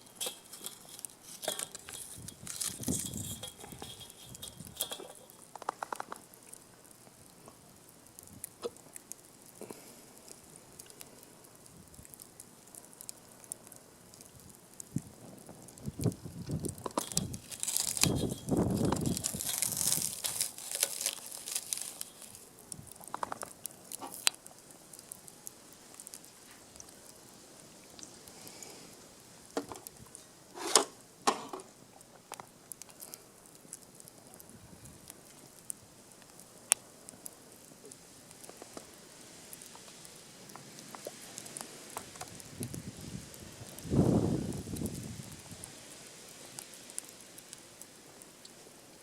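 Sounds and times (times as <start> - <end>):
dry kindling rustling: 0.0 - 6.4, 11.9 - 27.2
wood fire crackling: 0.0 - 49.0.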